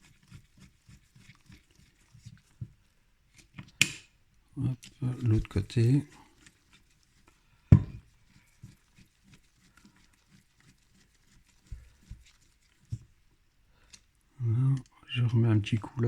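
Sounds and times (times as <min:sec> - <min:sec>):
hand tool knocks: 0:07.7 - 0:08.0.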